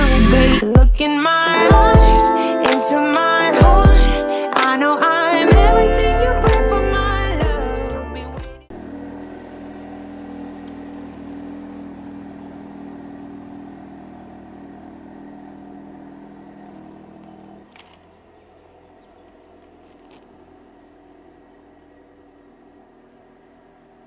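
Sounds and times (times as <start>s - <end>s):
car engine running: 0.0s - 0.7s, 1.5s - 2.3s, 8.4s - 24.0s.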